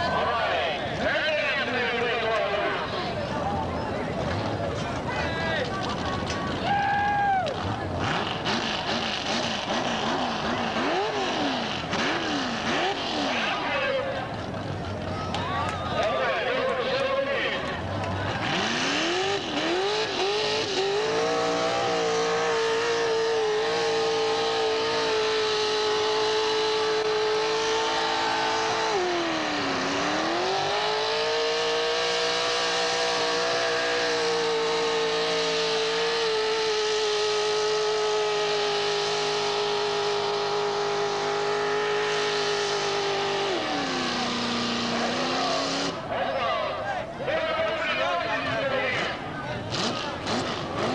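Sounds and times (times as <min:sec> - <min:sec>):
vehicle engine revving hard: 0:07.7 - 0:14.1, 0:17.8 - 0:46.1, 0:49.6 - 0:50.9.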